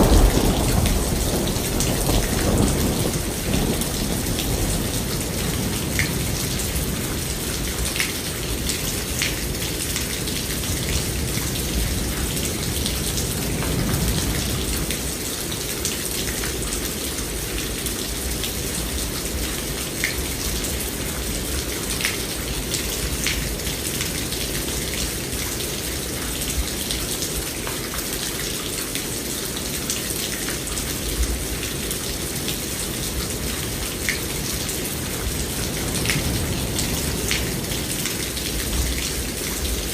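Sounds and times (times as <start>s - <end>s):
low rumble of thunder: 0.0s - 15.2s, 32.6s - 39.9s
steady rain: 0.0s - 39.9s.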